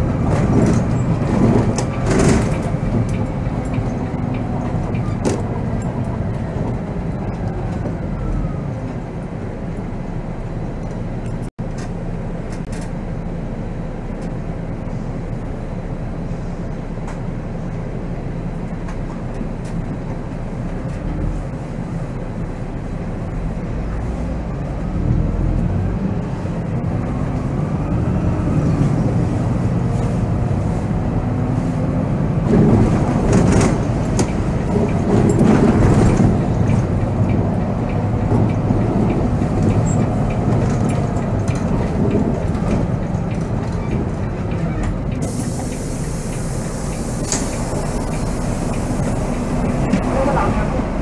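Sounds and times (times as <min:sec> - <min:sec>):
diesel coach engine running: 0:00.0 - 0:51.0.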